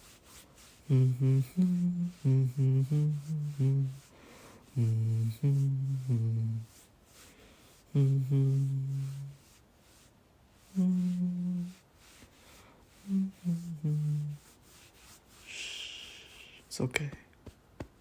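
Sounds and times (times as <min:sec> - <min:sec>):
man humming: 0:00.8 - 0:06.8, 0:07.9 - 0:09.4, 0:10.7 - 0:11.8, 0:13.0 - 0:14.5, 0:15.5 - 0:16.7.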